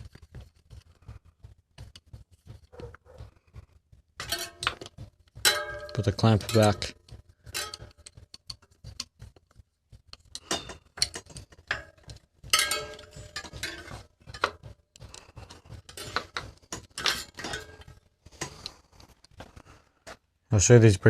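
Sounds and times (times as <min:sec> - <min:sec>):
metal clattering: 0:00.0 - 0:19.8
metal bike parts clinking: 0:04.2 - 0:09.2, 0:10.2 - 0:19.8.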